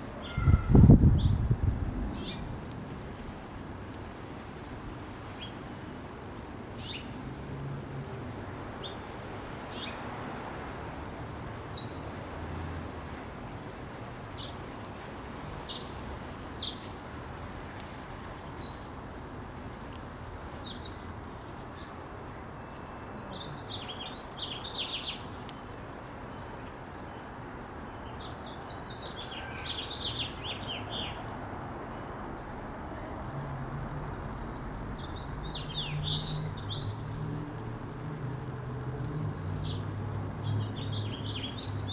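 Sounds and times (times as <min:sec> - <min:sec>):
birds twittering rapidly: 0:00.2 - 0:01.4, 0:33.2 - 0:38.6, 0:39.4 - 0:41.9.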